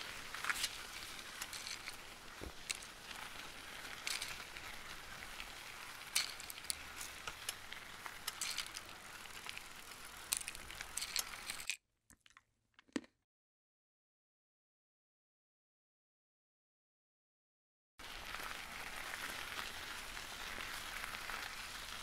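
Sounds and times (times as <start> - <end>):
food sizzling in a frying pan: 0.0 - 11.7, 18.0 - 22.0.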